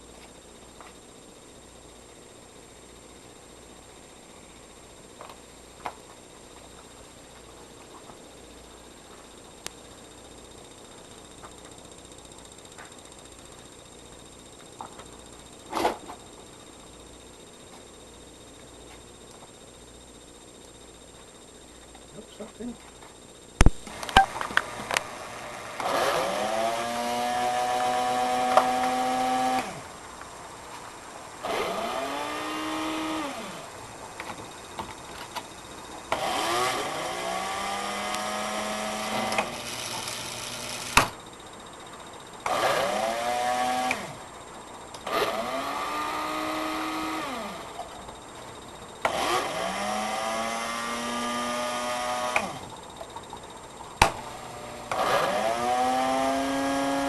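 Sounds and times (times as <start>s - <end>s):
small electric motor whining: 23.6s - 57.0s.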